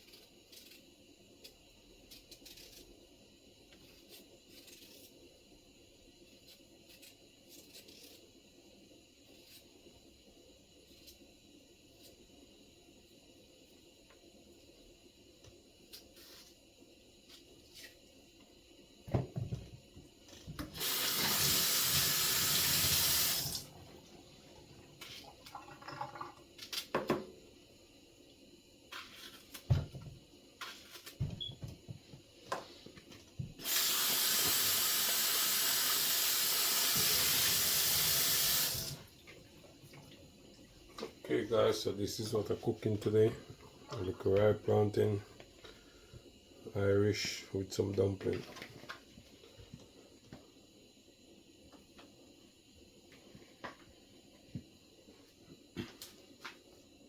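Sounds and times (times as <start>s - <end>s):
tap water running: 20.6s - 24.1s, 25.0s - 26.4s, 33.6s - 39.4s.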